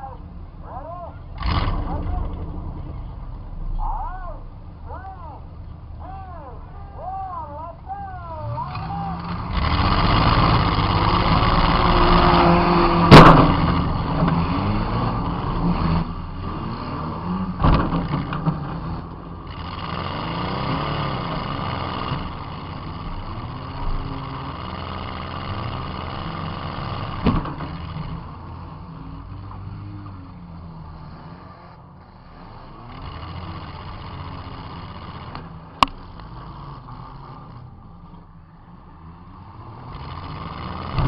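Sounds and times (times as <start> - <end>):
car engine revving: 0.0 - 41.0
smaller car impacts: 12.4 - 15.2, 17.4 - 19.2, 27.0 - 28.3
car collision crash: 12.9 - 14.4, 17.5 - 18.8.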